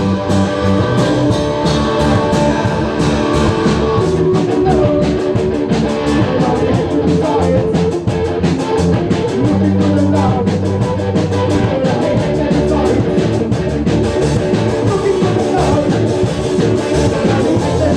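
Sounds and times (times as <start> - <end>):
drum kit: 0.0 - 17.9
low bass notes: 0.0 - 17.9
rock guitar: 0.0 - 17.9.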